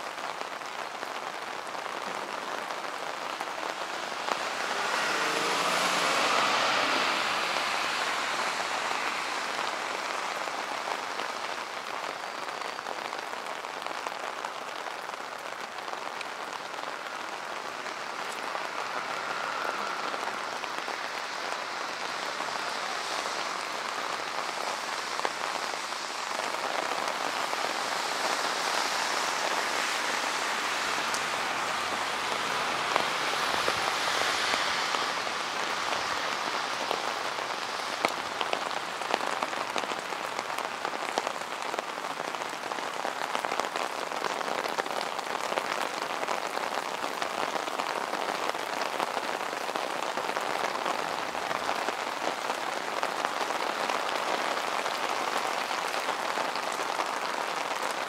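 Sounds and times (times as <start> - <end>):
rain on wet pavement: 0.0 - 58.0
close drips and splashes: 2.8 - 43.1.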